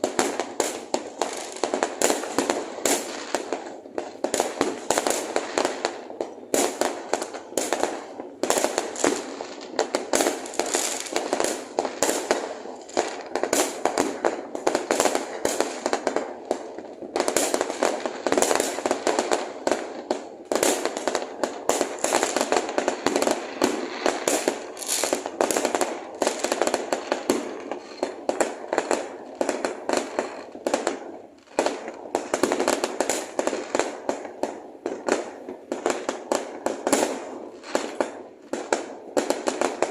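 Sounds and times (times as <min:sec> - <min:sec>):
fireworks banging and crackling: 0:00.0 - 0:39.9.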